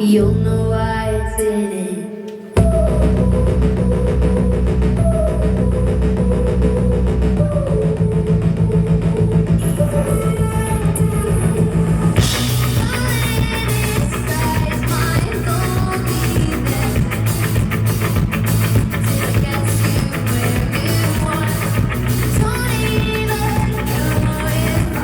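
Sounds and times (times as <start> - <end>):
live rock-pop band playing: 11.9 - 25.0
drums and cymbals beat: 12.2 - 25.0.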